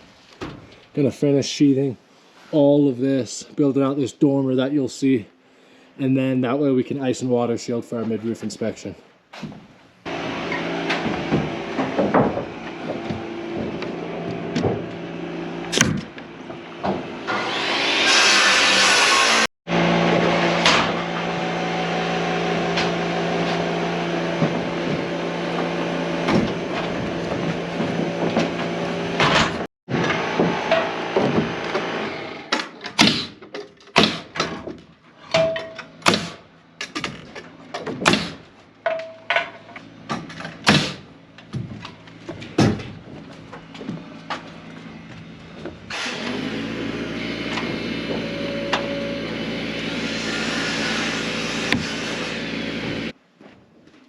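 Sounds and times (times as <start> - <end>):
sharp nailing strikes: 15.7 - 16.1, 29.2 - 37.2, 37.8 - 39.5, 40.2 - 41.1.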